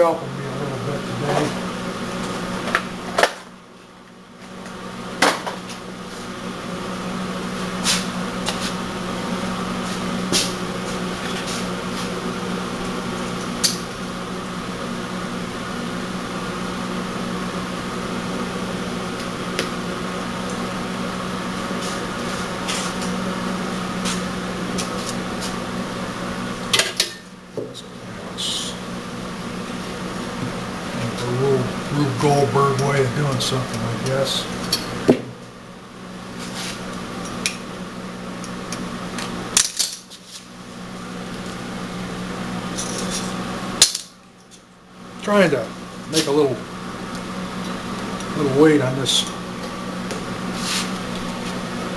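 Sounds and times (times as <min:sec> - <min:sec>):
engine running steadily: 0:27.5 - 0:35.5.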